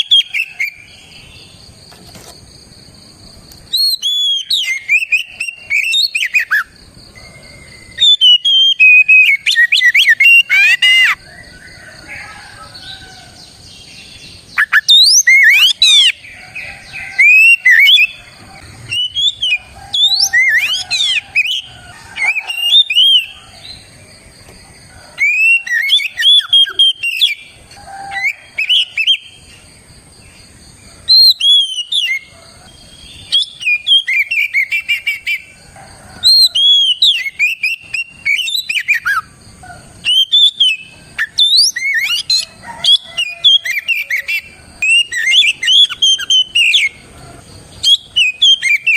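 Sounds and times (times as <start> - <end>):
bird singing whistles and chirps: 0.0 - 1.4, 3.6 - 13.1, 13.8 - 23.8, 25.2 - 29.4, 31.1 - 35.5, 36.2 - 39.3, 40.0 - 47.0, 47.8 - 48.9.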